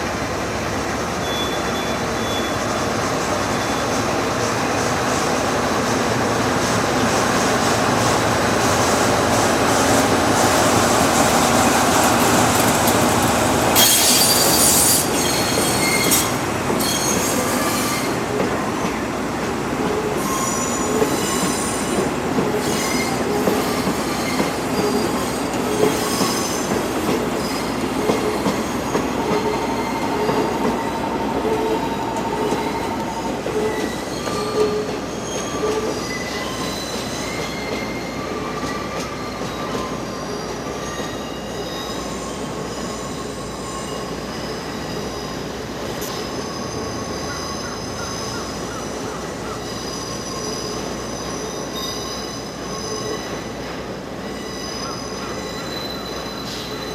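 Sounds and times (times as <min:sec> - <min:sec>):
high wheel squeals: 0:01.2 - 0:04.2, 0:13.7 - 0:18.3, 0:20.0 - 0:56.9
wheels clacking on rail joints: 0:07.2 - 0:40.0.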